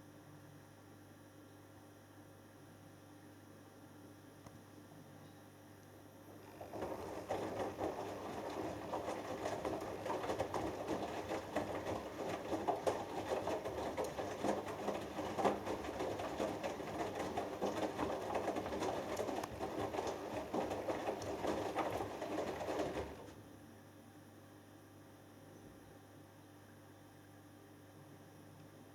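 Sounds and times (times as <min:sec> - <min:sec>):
washing machine drum turning: 0:06.4 - 0:23.4
water sloshing: 0:06.4 - 0:23.4.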